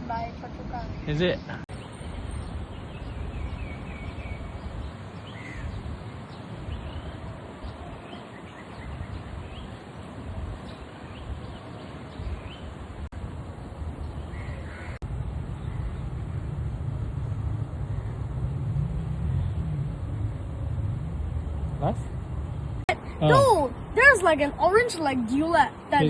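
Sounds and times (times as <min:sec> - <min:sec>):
birds chirping: 0:00.0 - 0:26.0
low rumble: 0:15.0 - 0:23.0.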